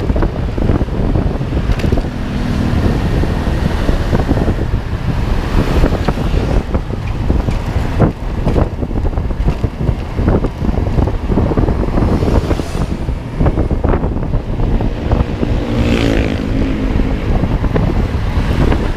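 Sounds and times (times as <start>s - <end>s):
road vehicle rumble: 0.0s - 18.9s
wind buffeting microphone: 0.0s - 18.9s.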